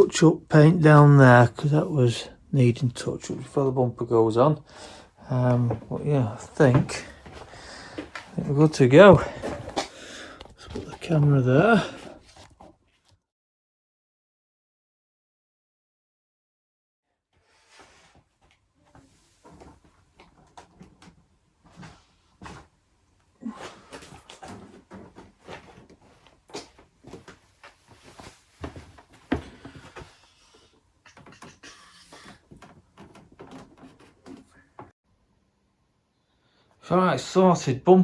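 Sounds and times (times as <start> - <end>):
objects knocking and clattering: 31.1 - 34.9.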